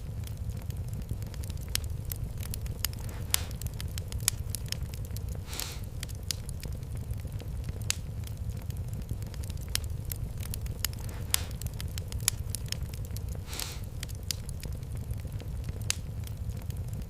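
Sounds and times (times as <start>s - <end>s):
low fire rumble: 0.0s - 17.0s
wood fire crackling: 0.0s - 17.0s
short hiss: 5.5s - 5.9s, 13.4s - 13.9s.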